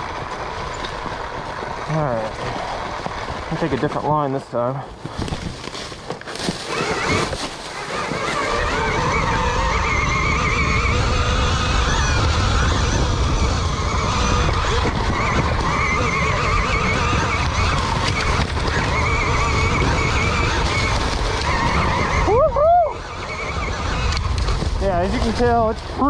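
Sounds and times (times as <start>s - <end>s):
wind and tyre rumble: 0.0s - 26.0s
electric motor whine: 6.2s - 25.5s.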